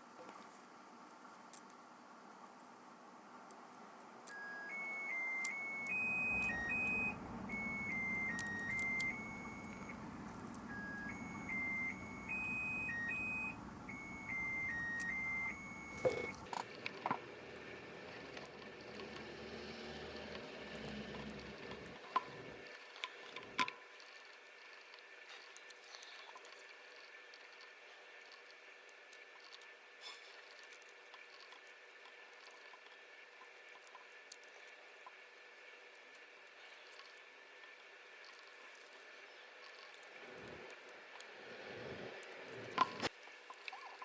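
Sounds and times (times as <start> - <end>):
small clicks: 4.2 - 23.8
electronic beeping melody: 4.3 - 16.5
low steady hum: 4.3 - 19.0.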